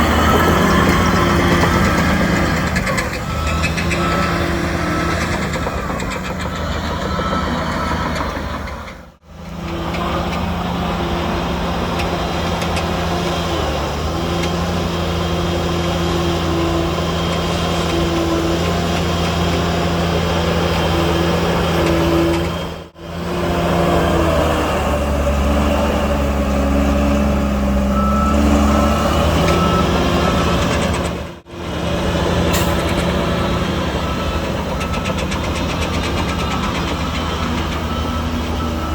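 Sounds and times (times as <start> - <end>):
reversing beeper: 0.0 - 6.0, 27.1 - 31.2, 32.5 - 35.4, 36.2 - 38.9
heavy diesel engines running: 0.0 - 38.9.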